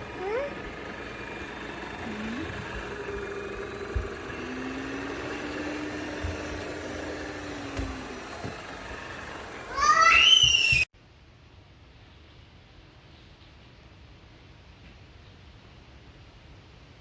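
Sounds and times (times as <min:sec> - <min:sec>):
robot vacuum motor hum: 0:00.0 - 0:10.8.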